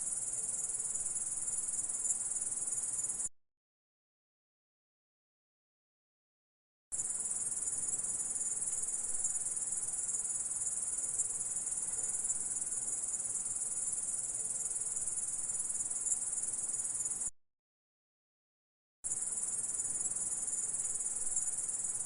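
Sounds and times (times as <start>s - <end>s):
insect high-pitched trill: 7.0s - 17.3s, 19.1s - 22.0s.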